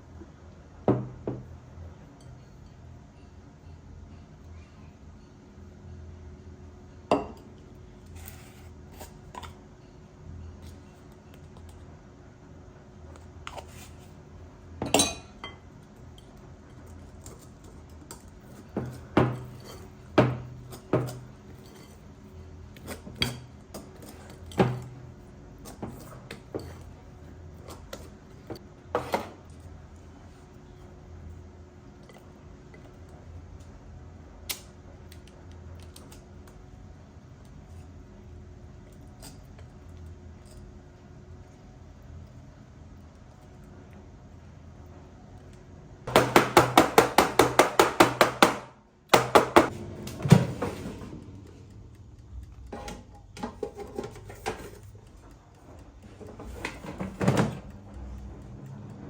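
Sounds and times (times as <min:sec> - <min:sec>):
dishes and utensils clinking: 0:14.8 - 0:15.7.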